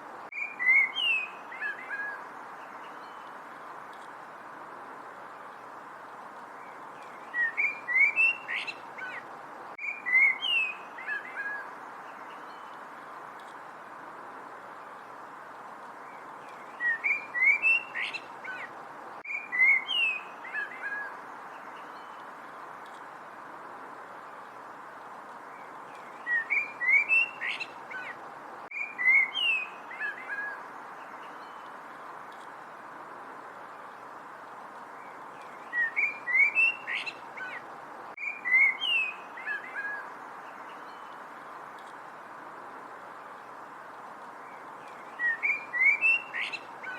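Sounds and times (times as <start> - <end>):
songbird singing: 0.0 - 46.9
steady background hiss: 0.0 - 46.9
songbird whistling: 0.3 - 2.2, 7.3 - 9.2, 9.8 - 11.6, 16.7 - 18.7, 19.3 - 21.1, 26.2 - 28.1, 28.7 - 30.6, 35.6 - 37.6, 38.2 - 40.1, 44.9 - 46.9.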